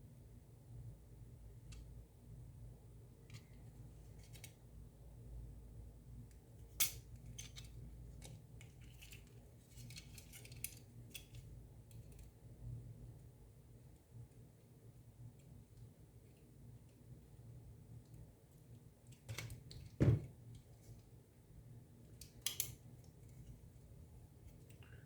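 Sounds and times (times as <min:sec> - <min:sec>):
small metal tool clicking: 0:22.2 - 0:22.8.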